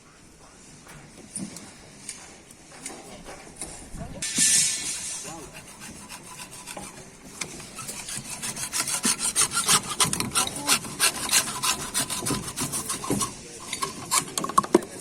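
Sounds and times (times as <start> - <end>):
hand tool rasping on plastic pipe: 4.9 - 14.7.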